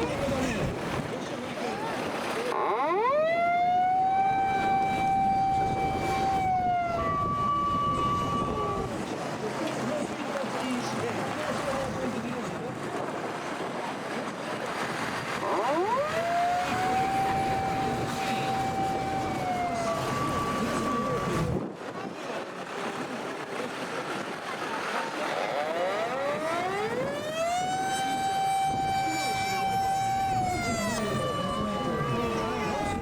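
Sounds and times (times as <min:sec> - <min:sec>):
fire engine sirens: 0:01.6 - 0:09.3, 0:15.3 - 0:21.6, 0:24.8 - 0:33.0
background traffic: 0:13.6 - 0:21.7, 0:22.9 - 0:33.0.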